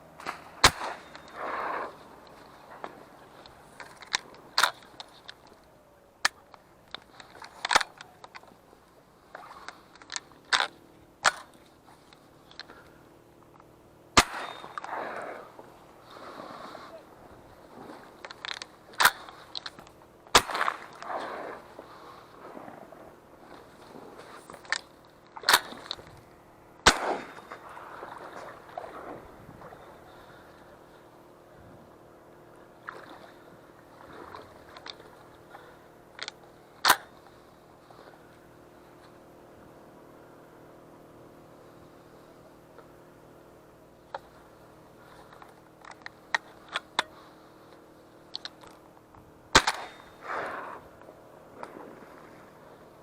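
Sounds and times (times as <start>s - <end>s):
shotgun shots: 0.2s - 1.9s, 14.1s - 15.1s, 20.3s - 21.6s, 26.8s - 27.6s, 49.5s - 50.7s
sharp crack: 0.2s - 8.5s, 9.3s - 12.9s, 14.1s - 17.0s, 17.9s - 22.8s, 23.5s - 26.2s, 26.8s - 29.3s, 34.2s - 37.4s, 49.5s - 52.4s.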